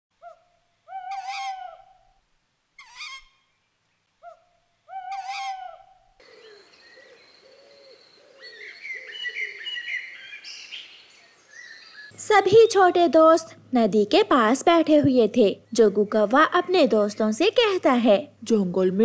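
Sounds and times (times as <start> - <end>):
bird call: 4.2 - 12.8
chorus of small birds chirping: 6.2 - 12.8.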